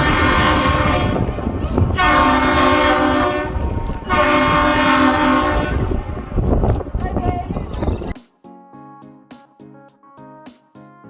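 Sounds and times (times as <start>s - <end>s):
train horn blasts: 0.0s - 6.0s.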